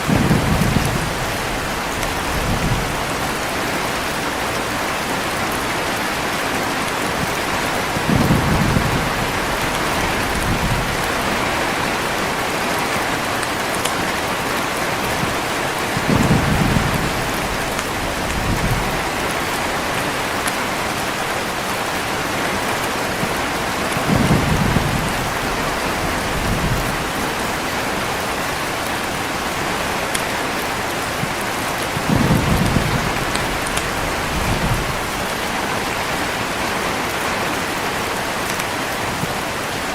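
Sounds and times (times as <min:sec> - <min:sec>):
thunder rolling: 0:00.0 - 0:03.5, 0:07.2 - 0:13.2, 0:14.9 - 0:20.3, 0:23.9 - 0:28.3, 0:31.0 - 0:36.2
heavy rain falling: 0:00.0 - 0:39.9.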